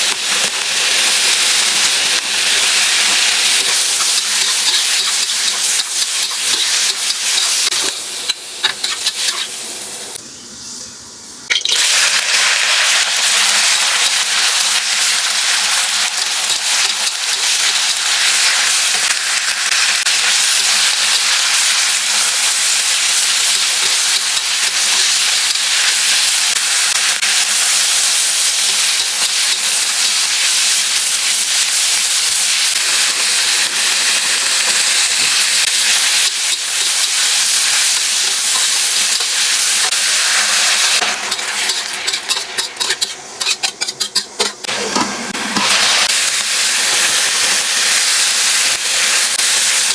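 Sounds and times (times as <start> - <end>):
food sizzling in hot oil: 0.0 - 10.2, 11.5 - 44.8, 45.4 - 49.9.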